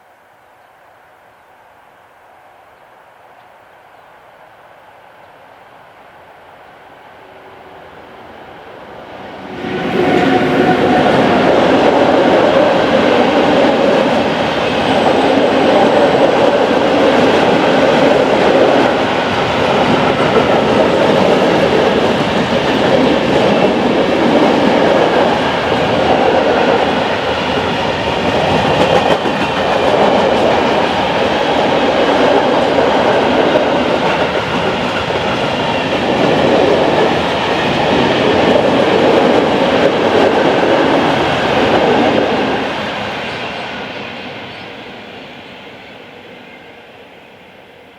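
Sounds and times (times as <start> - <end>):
freight train wheels rumbling on rail: 7.3 - 47.2
clickety-clack over rail joints: 10.9 - 44.0.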